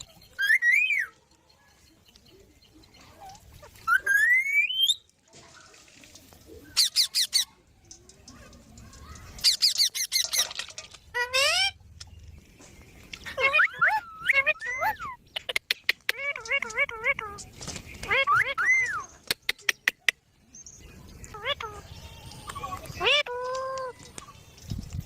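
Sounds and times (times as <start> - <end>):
parrot squawking: 6.8 - 7.6, 9.4 - 10.5, 11.1 - 11.8, 13.2 - 17.4.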